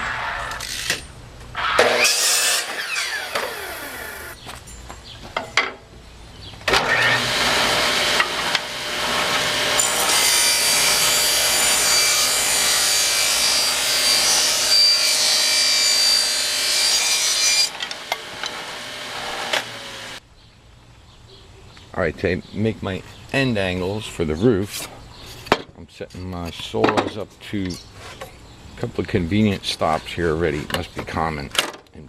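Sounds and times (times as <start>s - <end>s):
power saw cutting wood: 1.6s - 4.4s, 6.7s - 20.2s.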